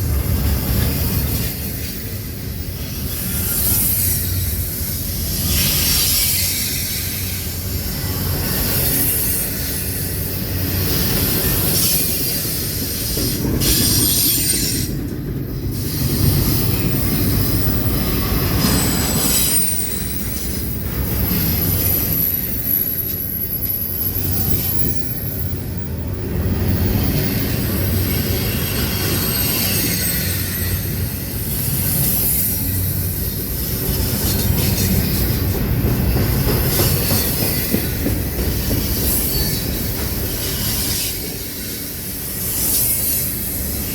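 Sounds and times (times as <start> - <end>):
train wheels rumbling on rails: 0.0 - 43.9
high wheel squeal: 15.9 - 24.9, 38.5 - 43.9.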